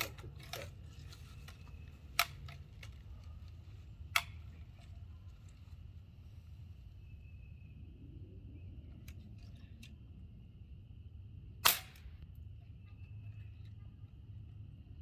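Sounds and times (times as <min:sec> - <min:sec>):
low steady hum: 0:00.0 - 0:15.0
bb gun clicks: 0:01.4 - 0:03.0, 0:04.1 - 0:04.4, 0:11.6 - 0:12.2.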